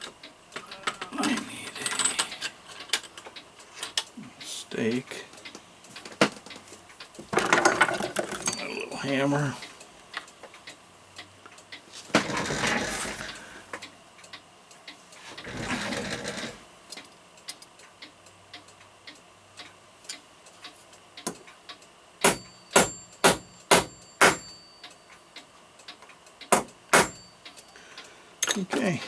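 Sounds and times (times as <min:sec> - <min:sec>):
faint light ticking: 0:16.9 - 0:22.0
hammer striking metal punch: 0:22.2 - 0:24.6, 0:26.5 - 0:27.2.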